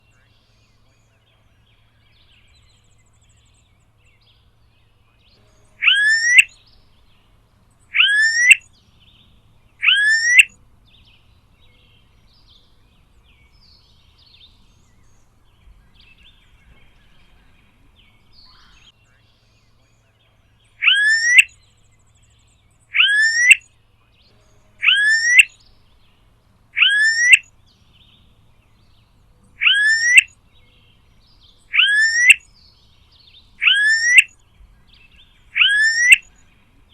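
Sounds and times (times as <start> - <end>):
bird whistled rising call: 5.6 - 7.0, 7.9 - 8.8, 9.8 - 10.6, 20.6 - 22.3, 22.9 - 23.7, 24.7 - 25.7, 26.8 - 28.2, 29.6 - 36.9.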